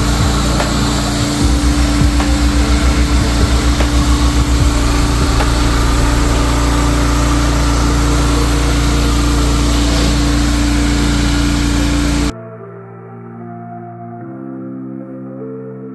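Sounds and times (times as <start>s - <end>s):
pressure washer engine hum: 0.0s - 12.3s
water spraying hiss: 0.0s - 12.3s.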